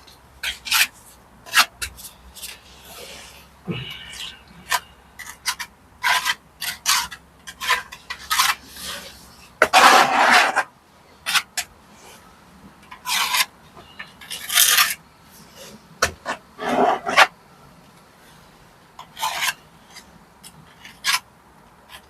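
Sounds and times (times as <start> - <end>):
hand tool scraping brickwork: 0.4 - 12.2, 12.9 - 17.4, 19.0 - 21.3.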